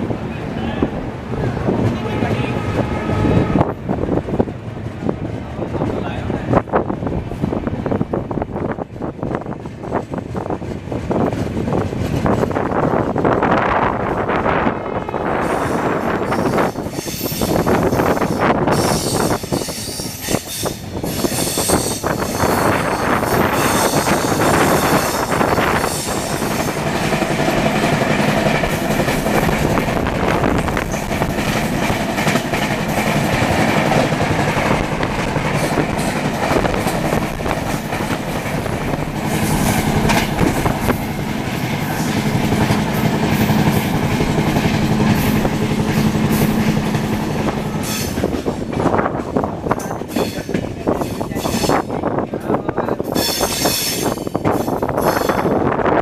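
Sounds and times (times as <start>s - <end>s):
train running rumble: 0.0s - 56.0s
train wheels clattering: 15.4s - 55.9s.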